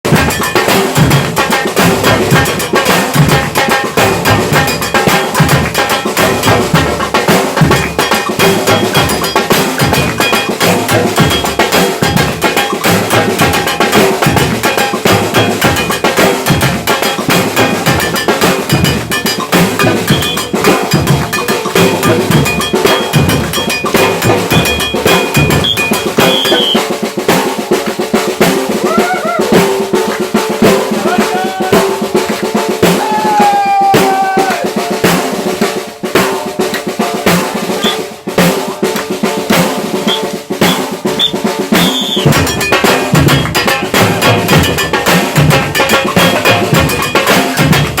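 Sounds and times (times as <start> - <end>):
samba percussion band playing: 0.0 - 48.0
short high tones: 24.5 - 26.8.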